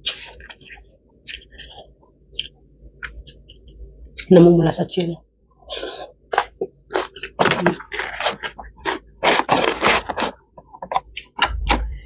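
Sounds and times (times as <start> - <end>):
crisp chewing crunches: 6.3 - 11.9.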